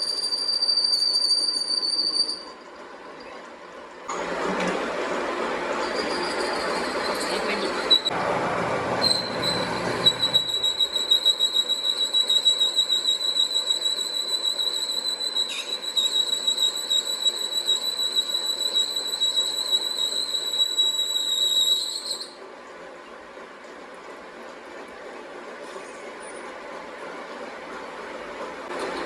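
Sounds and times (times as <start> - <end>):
high-pitched metallic squeal: 0.0 - 2.6, 5.7 - 8.2, 9.0 - 22.4.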